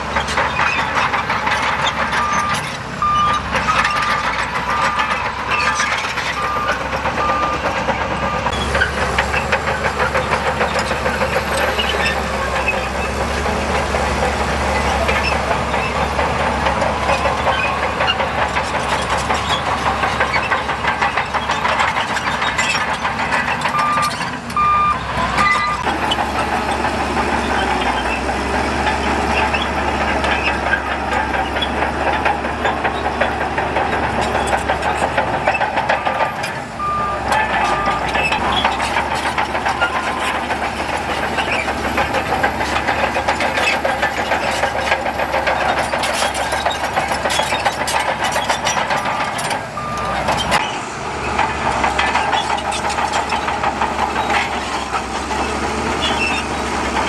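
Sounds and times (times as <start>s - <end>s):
diesel engine running under load: 0.0s - 57.0s
reversing alarm beeps: 2.2s - 5.7s, 6.4s - 8.6s, 23.7s - 25.8s, 36.3s - 38.7s, 49.0s - 50.2s.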